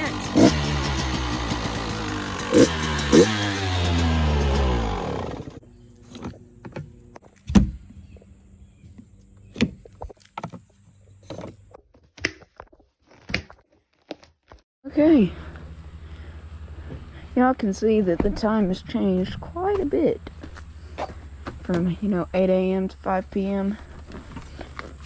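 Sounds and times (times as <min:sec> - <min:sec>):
two-stroke engine running: 0:00.0 - 0:07.2.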